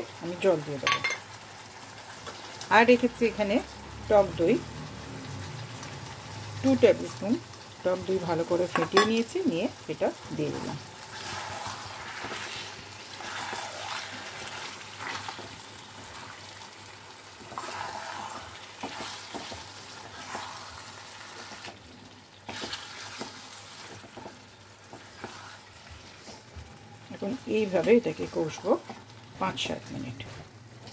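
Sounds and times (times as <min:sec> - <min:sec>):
meat sizzling in a frying pan: 0:00.0 - 0:30.9
spatula scraping and knocking pan: 0:17.4 - 0:21.8, 0:22.5 - 0:26.6.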